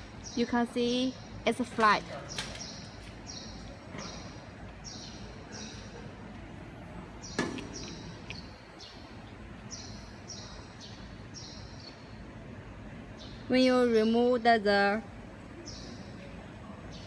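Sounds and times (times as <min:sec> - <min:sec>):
steady low hum: 0:00.0 - 0:17.0
small bird chirping: 0:07.2 - 0:12.2.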